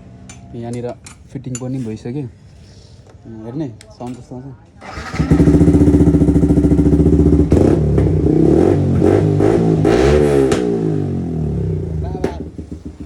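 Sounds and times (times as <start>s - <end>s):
motorcycle engine revving: 4.8s - 13.0s.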